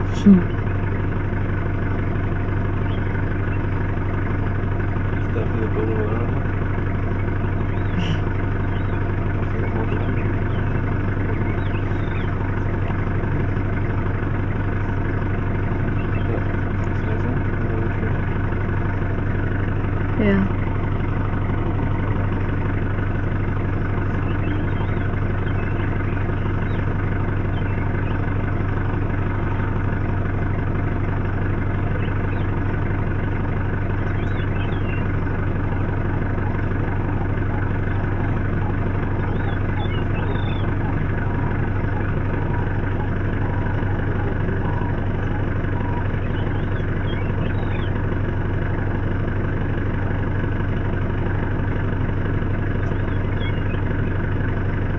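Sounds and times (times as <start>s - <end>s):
vehicle engine idling: 0.0s - 54.9s.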